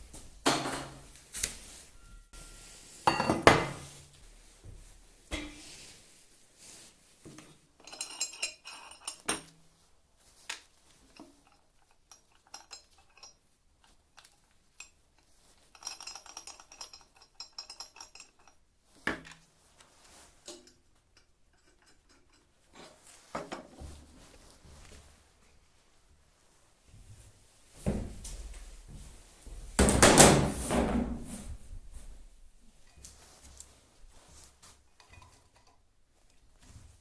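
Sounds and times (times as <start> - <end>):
metal tools clinking: 7.8 - 9.3.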